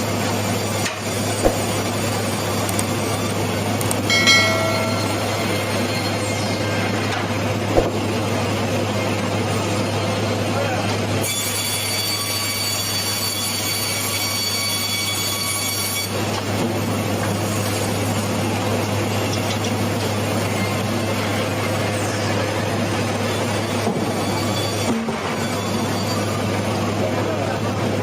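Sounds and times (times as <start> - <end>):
sawmill machinery running: 0.0 - 28.0
thin high whine: 4.0 - 7.4.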